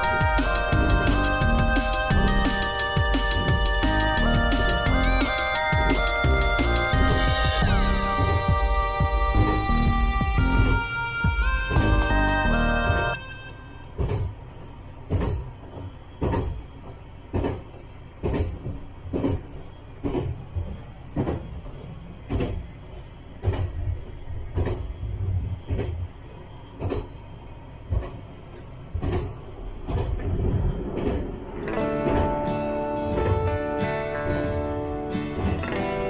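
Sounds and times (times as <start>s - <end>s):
train running rumble: 0.0s - 36.0s.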